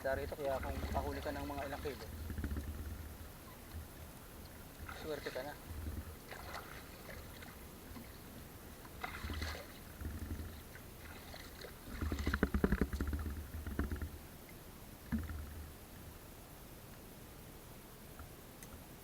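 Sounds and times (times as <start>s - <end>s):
low rumbling handling noise: 0.0s - 6.3s, 9.8s - 10.9s, 11.8s - 14.4s, 15.0s - 16.1s
water splashing and sloshing: 0.0s - 16.0s.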